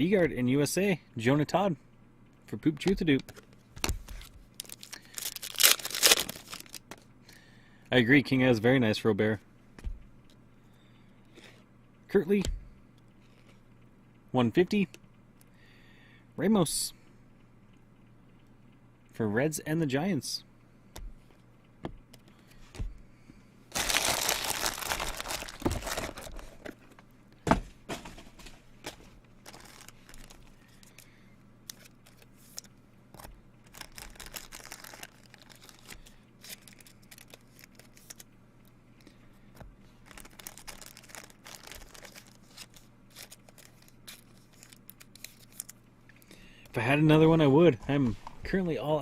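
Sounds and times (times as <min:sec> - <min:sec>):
plastic packaging crinkling: 0:03.9 - 0:07.1, 0:23.7 - 0:26.9, 0:28.0 - 0:38.3, 0:40.0 - 0:45.8
packaging tearing: 0:04.2 - 0:07.0, 0:23.7 - 0:26.6, 0:29.4 - 0:31.0, 0:31.7 - 0:38.3, 0:40.0 - 0:45.7.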